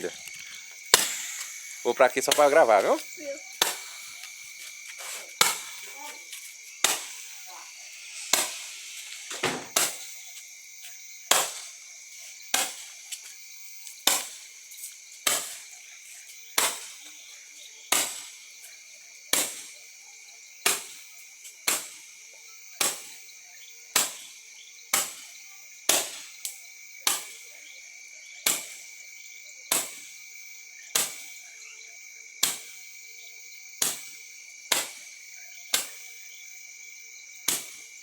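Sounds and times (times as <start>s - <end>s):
crickets chirring: 0.0s - 38.0s
firework bangs: 0.8s - 3.0s, 3.6s - 4.1s, 5.4s - 5.9s, 6.8s - 10.2s, 11.3s - 11.7s.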